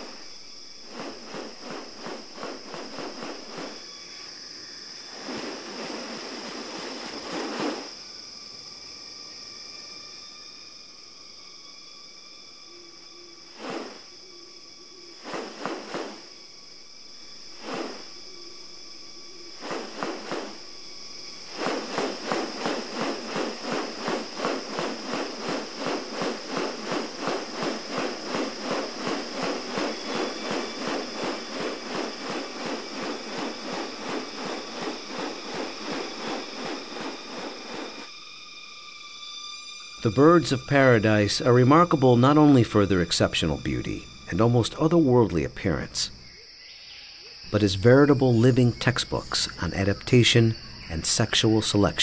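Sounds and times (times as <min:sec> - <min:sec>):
high insect drone: 0:00.0 - 0:52.0
fast even pulsing: 0:21.4 - 0:38.1.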